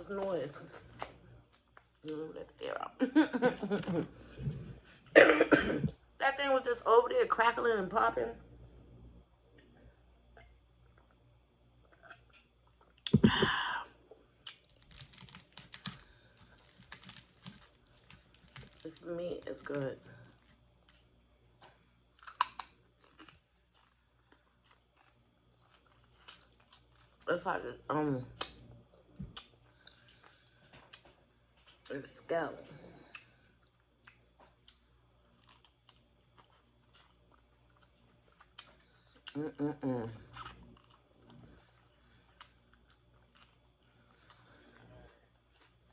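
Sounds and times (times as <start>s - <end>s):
chewing crispy fried fish: 14.4s - 27.3s, 33.0s - 45.9s.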